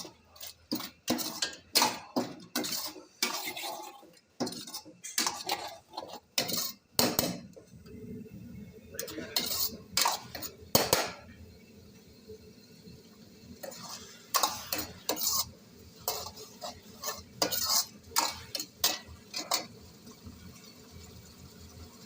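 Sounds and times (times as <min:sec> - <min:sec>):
spoon scraping cooking pan: 0:00.0 - 0:07.6, 0:09.0 - 0:11.2, 0:13.6 - 0:19.8.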